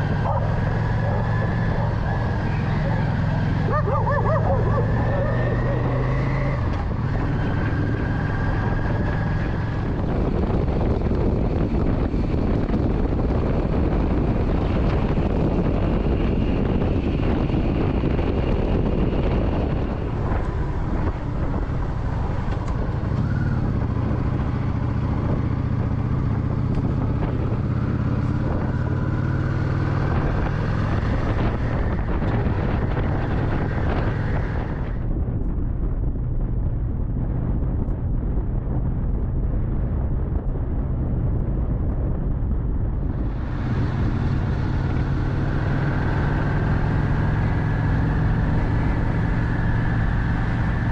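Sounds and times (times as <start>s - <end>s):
motorcycle engine running: 0.0s - 50.9s
wind rushing over microphone: 0.0s - 50.9s.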